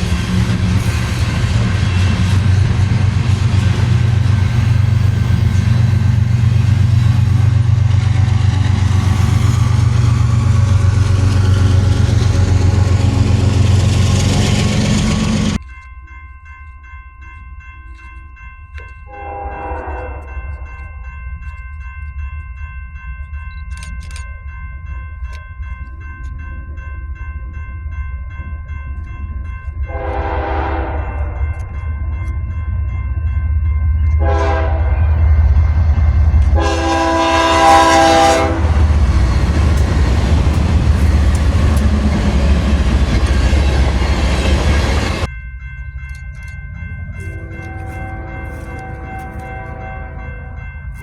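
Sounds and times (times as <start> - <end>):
diesel locomotive engine drone: 0.0 - 15.8, 16.8 - 51.0
chord of high tones: 43.4 - 51.0.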